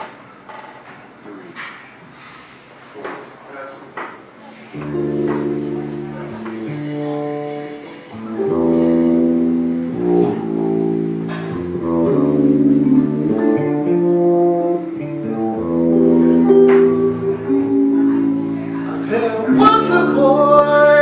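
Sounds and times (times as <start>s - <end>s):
live band playing slow instrumental: 4.8s - 21.0s.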